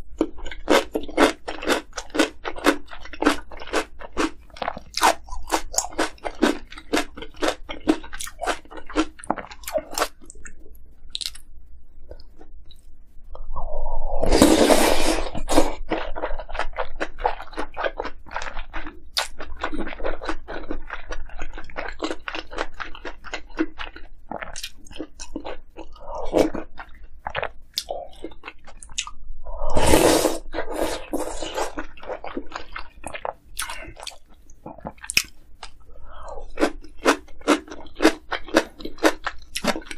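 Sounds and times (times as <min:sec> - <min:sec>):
crunchy chewing: 0:00.2 - 0:11.5, 0:14.4 - 0:29.2, 0:30.2 - 0:39.9.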